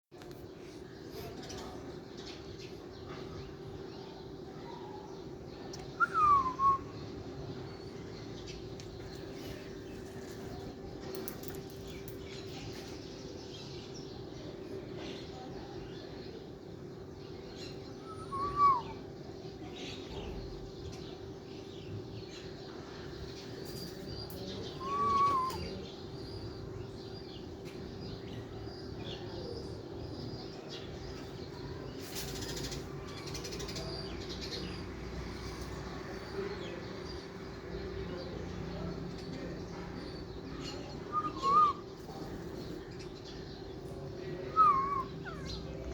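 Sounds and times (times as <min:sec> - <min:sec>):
birds chirping faintly: 0:00.1 - 0:45.9
rising and falling bird calls: 0:05.8 - 0:07.1, 0:17.6 - 0:19.0, 0:24.6 - 0:26.4, 0:40.6 - 0:42.2, 0:44.4 - 0:45.9.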